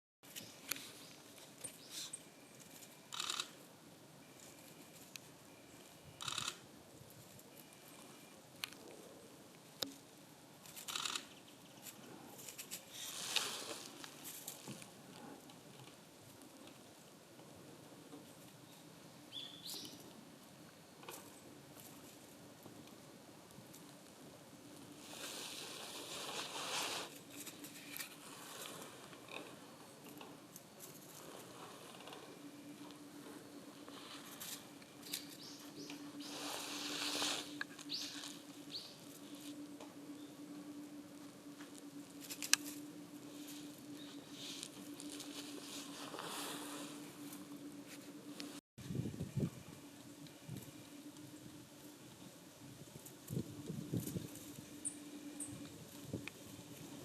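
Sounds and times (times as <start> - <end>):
dry grass and leaves rustling: 0.2 - 57.0
sharp ticks: 3.1 - 3.6
leaf litter rustling: 12.4 - 15.0, 24.8 - 29.4, 33.2 - 39.6, 42.0 - 48.5.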